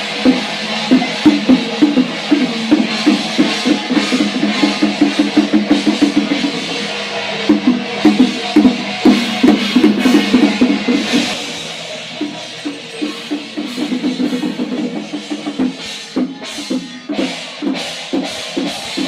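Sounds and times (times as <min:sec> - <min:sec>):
fast drumming on a large drum: 0:00.0 - 0:06.7, 0:07.5 - 0:11.4.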